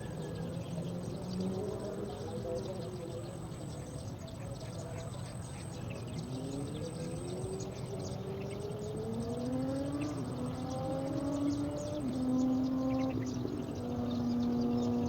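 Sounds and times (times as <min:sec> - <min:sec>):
engine rising in pitch: 0:06.2 - 0:15.0.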